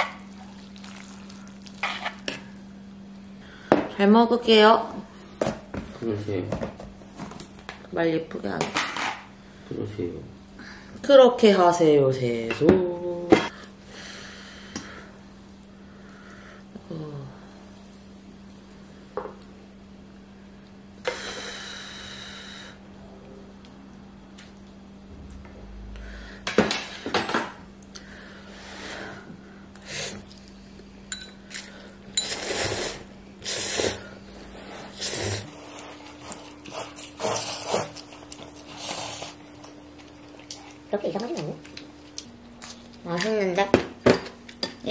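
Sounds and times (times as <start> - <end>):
utensils clinking on dishes: 31.1 - 32.4.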